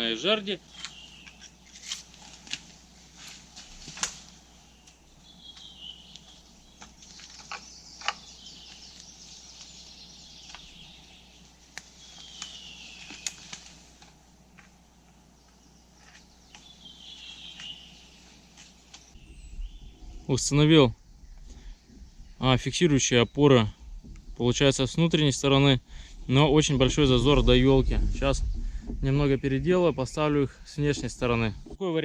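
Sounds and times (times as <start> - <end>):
songbird singing: 0.0 - 1.9, 4.1 - 31.8
rustling: 0.7 - 5.0, 11.7 - 14.8.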